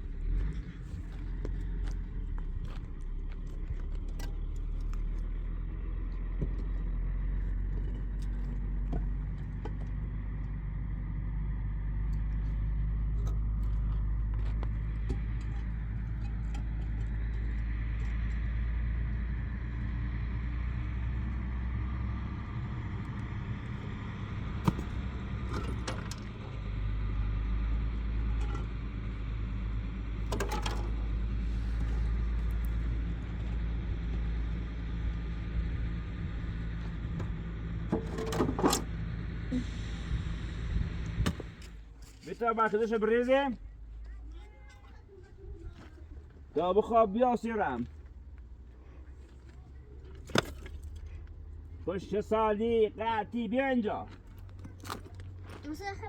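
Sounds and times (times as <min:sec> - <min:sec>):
low rumble: 0:00.0 - 0:42.0.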